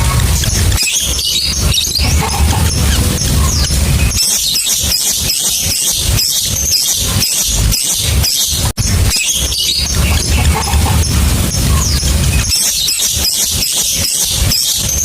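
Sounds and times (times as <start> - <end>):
birds chirping and squawking: 0.0 - 15.0
low rumble: 1.5 - 5.4, 8.8 - 12.8.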